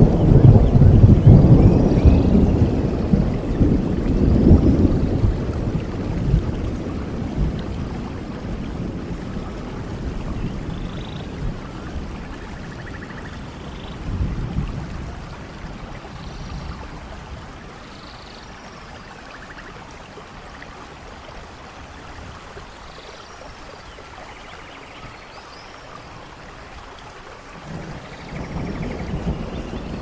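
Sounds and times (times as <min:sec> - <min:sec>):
rumble of thunder: 0:00.0 - 0:17.9, 0:27.6 - 0:30.0
steady rain: 0:00.0 - 0:30.0.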